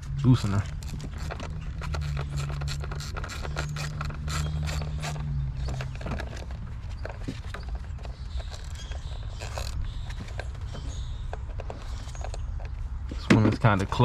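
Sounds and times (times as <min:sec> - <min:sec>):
ratchet wrench clicking: 0:00.8 - 0:06.5, 0:08.3 - 0:10.4.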